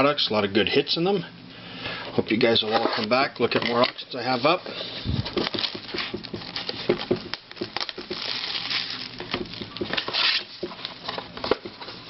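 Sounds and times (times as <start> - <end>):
plastic wrap crinkling: 4.3 - 12.0.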